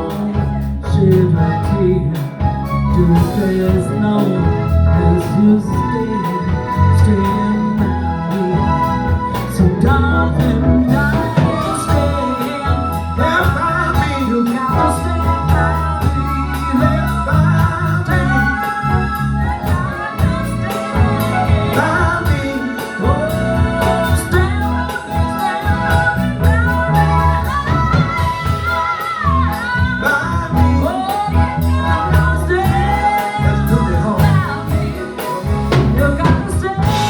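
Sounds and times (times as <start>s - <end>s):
bass and drum beat: 0.0s - 37.0s
person singing: 0.0s - 37.0s.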